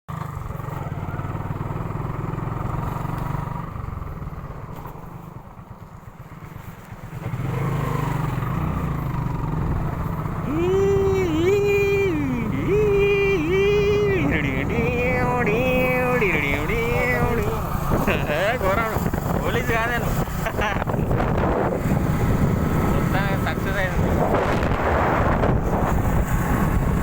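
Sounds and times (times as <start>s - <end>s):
motorcycle engine: 0.1s - 27.0s
wind rumble on microphone: 9.6s - 27.0s
voice with sliding pitches: 10.4s - 20.1s.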